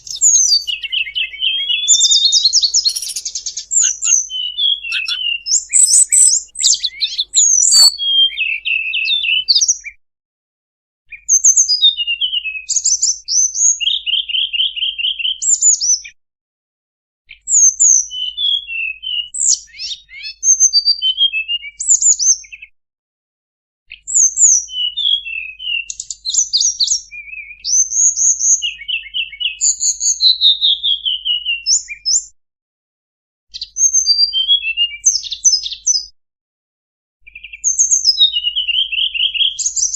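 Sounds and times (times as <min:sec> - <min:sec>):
recorded birdsong chirps and trills: 0:00.0 - 0:09.9.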